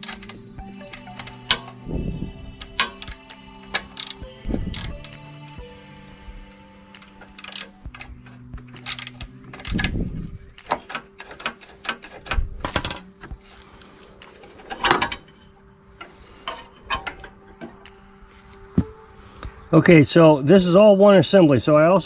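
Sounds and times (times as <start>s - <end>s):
metal tools clicking and knocking: 0.0s - 1.9s, 2.5s - 5.7s, 6.9s - 18.0s.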